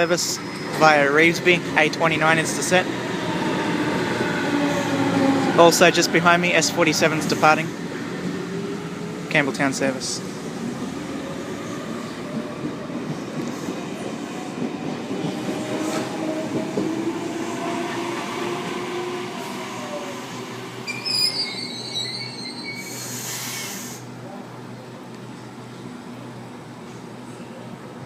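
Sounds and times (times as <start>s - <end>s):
train wheels squealing: 0.4s - 0.8s, 20.9s - 24.0s
air hiss: 22.8s - 24.1s.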